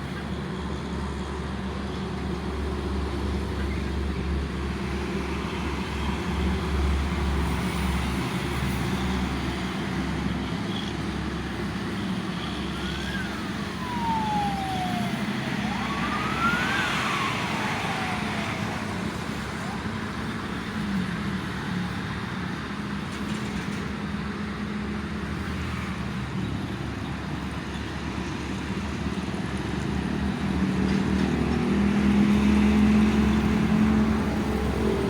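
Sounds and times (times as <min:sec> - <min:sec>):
road traffic rumble: 0:00.0 - 0:35.0
siren wailing: 0:12.4 - 0:20.0.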